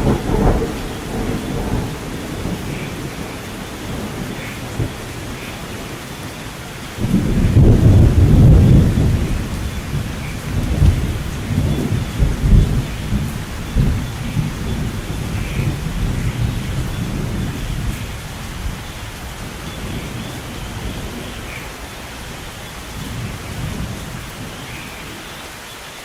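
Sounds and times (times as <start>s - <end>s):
thunder rumbling: 0.0s - 25.2s
steady rain: 0.0s - 26.0s.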